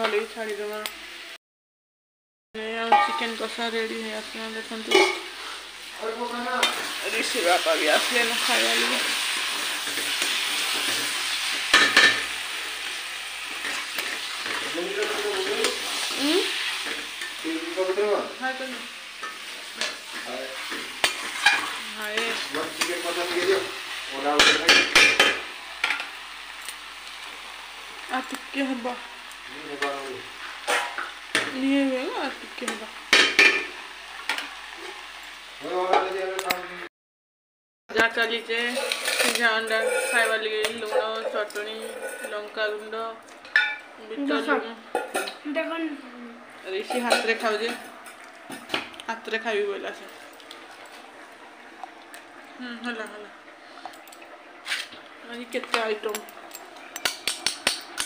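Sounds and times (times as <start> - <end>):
chicken sizzling in pan: 2.9 - 36.8, 38.4 - 58.0
utensil clanking on metal pan: 4.9 - 5.3, 9.2 - 12.4, 19.2 - 23.6, 24.3 - 26.1, 32.7 - 34.5, 38.7 - 42.5, 44.9 - 45.4, 46.8 - 48.9, 55.6 - 58.0
utensil scraping pan: 6.6 - 17.4, 19.1 - 26.1, 38.6 - 42.6, 54.6 - 55.0.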